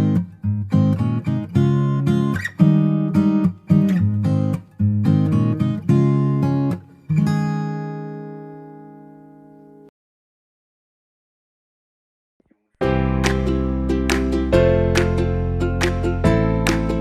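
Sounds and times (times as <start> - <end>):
acoustic guitar chords strummed: 12.8 - 17.0.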